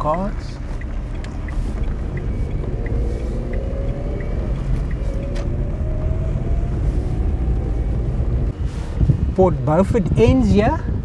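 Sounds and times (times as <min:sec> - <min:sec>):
turn indicator ticking: 0:00.0 - 0:08.6
vehicle engine accelerating: 0:00.0 - 0:09.4.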